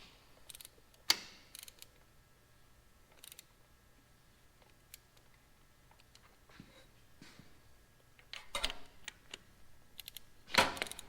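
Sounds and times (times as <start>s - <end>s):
quick clicks of metal parts: 10.0s - 11.0s.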